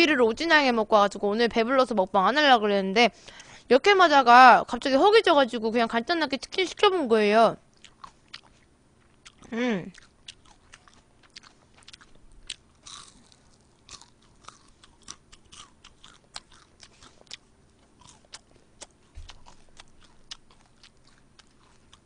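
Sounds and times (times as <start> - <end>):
person chewing crunchy food: 7.7 - 22.0.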